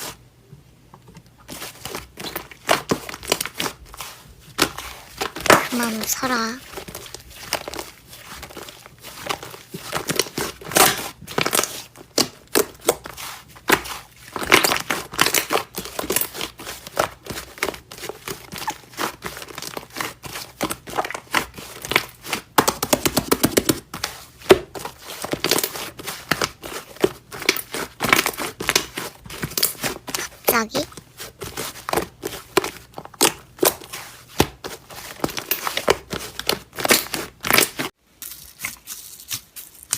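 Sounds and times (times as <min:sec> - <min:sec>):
slime squeezed with sticky pops: 0:09.2 - 0:13.1.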